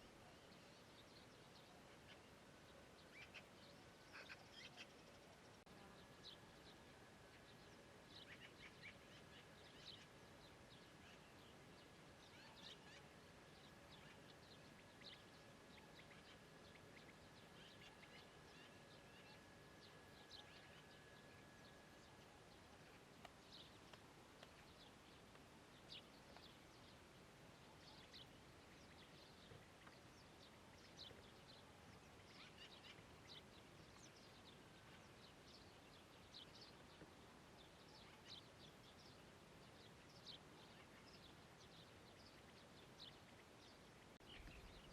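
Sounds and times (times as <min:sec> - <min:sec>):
small birds chirping: 0:00.0 - 0:44.9
soft background hiss: 0:00.0 - 0:44.9.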